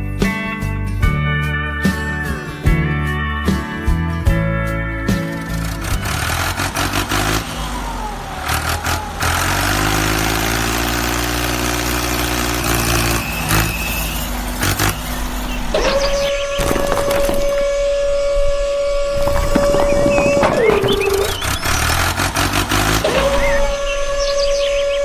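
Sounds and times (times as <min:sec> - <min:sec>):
vehicle engine humming: 0:01.8 - 0:25.0
noisy rush: 0:14.5 - 0:25.0.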